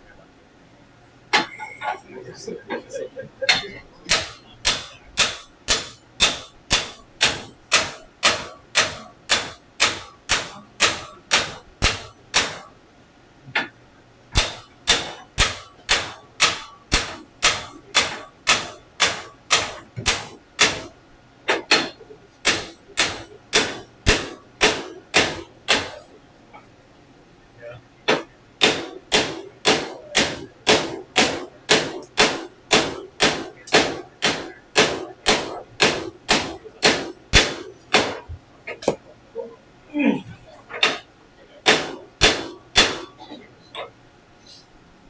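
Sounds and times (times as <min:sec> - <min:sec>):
hammer striking metal: 0:03.5 - 0:12.7, 0:14.4 - 0:26.1, 0:28.1 - 0:39.0, 0:40.8 - 0:43.3.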